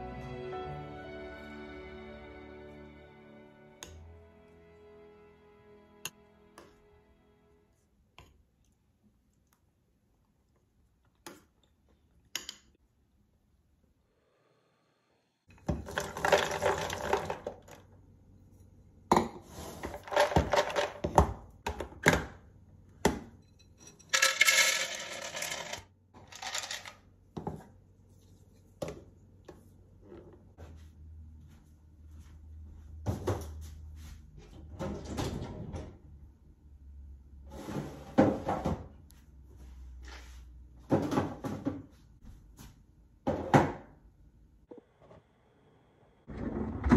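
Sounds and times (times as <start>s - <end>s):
nuts rattling in glass container: 24.1s - 26.9s.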